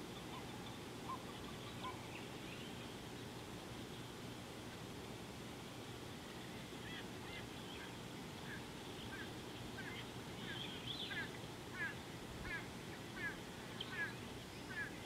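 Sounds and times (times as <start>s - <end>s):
low background noise: 0.0s - 15.0s
bird calling in short notes: 6.8s - 15.0s.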